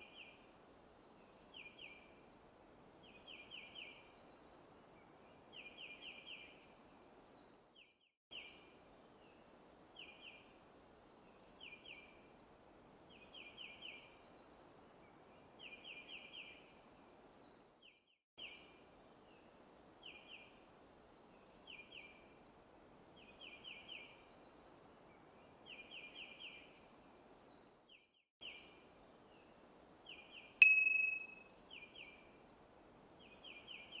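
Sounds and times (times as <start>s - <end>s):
songbird chirping: 28.4s - 32.4s
bell ding: 30.6s - 31.4s.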